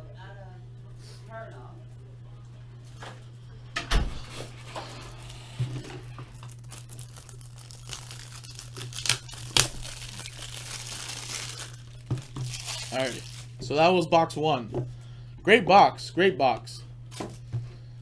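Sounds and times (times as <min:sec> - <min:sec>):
low electrical hum: 0:00.0 - 0:18.0
plastic crinkling and rustling: 0:04.8 - 0:13.6.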